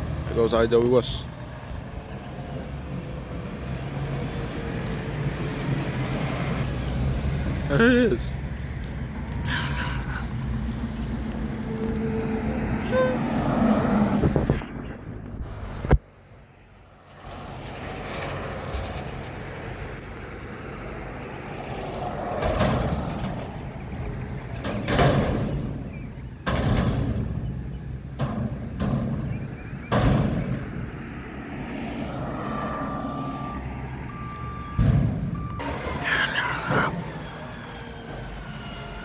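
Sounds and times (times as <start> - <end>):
steady beep: 32.5 - 37.0
garbage truck diesel engine running: 33.4 - 39.0.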